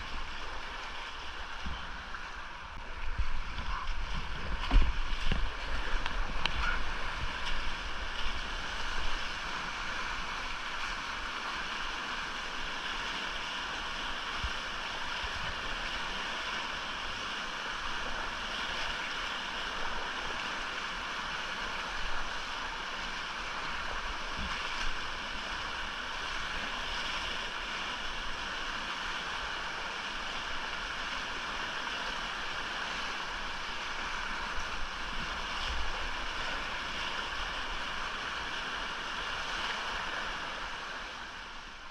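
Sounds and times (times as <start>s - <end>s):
creek rushing: 0.0s - 41.9s
low rumbling bumps: 1.4s - 9.1s.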